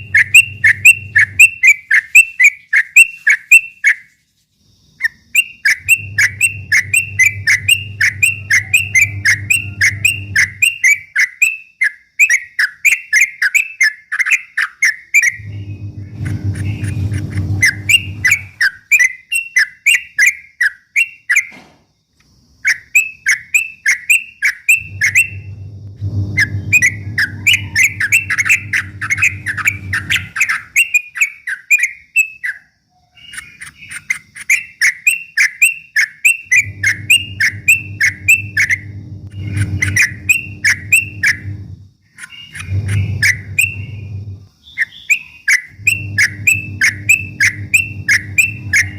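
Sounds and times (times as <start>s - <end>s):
bird singing sharp whistled notes: 0.0s - 4.0s, 5.3s - 21.6s, 22.7s - 25.5s, 26.4s - 41.4s, 42.2s - 48.9s
low steady hum: 5.8s - 11.1s, 15.3s - 18.6s, 24.8s - 30.7s, 36.5s - 44.6s, 45.7s - 48.9s.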